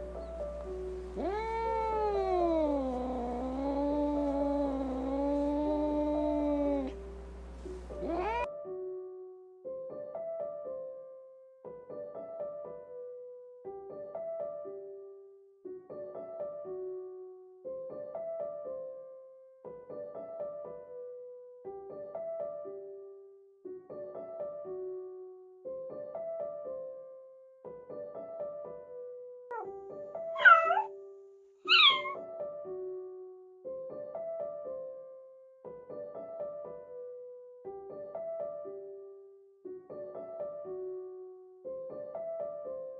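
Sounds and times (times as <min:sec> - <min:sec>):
piano music: 0:00.0 - 0:15.0
kitten meowing: 0:01.2 - 0:07.0, 0:07.9 - 0:08.5, 0:30.4 - 0:30.9, 0:31.7 - 0:32.2.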